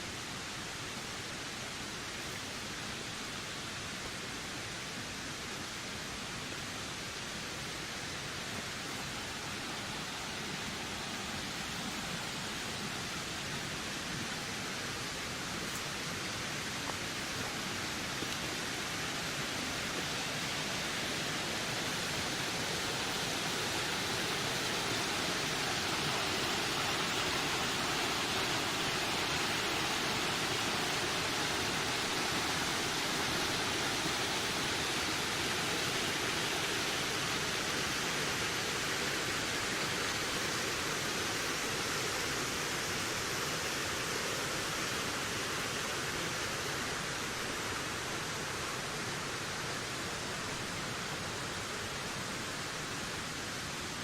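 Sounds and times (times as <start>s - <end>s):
wind through forest: 0.0s - 54.0s.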